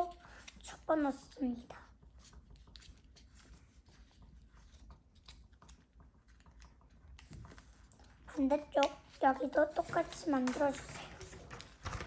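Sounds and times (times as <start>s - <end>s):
paper rustling and crinkling: 9.0s - 12.0s.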